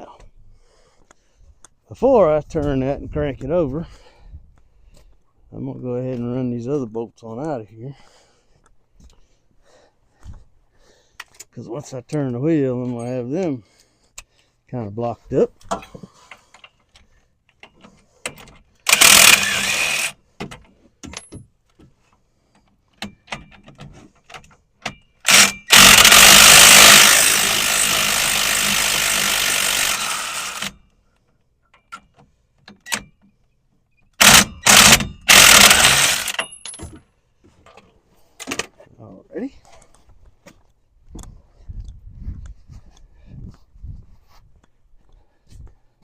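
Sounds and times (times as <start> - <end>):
impact wrench bursts: 18.8 - 20.2, 25.2 - 30.8, 34.2 - 36.8.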